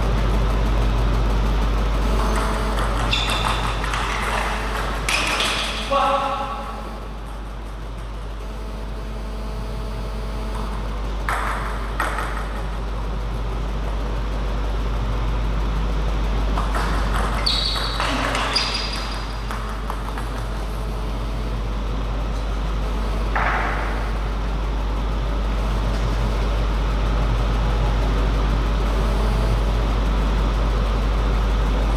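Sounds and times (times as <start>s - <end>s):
low hum in hall: 0.0s - 31.9s
table tennis ball tapping: 2.0s - 5.9s, 10.5s - 12.9s, 16.5s - 21.2s, 23.3s - 24.1s.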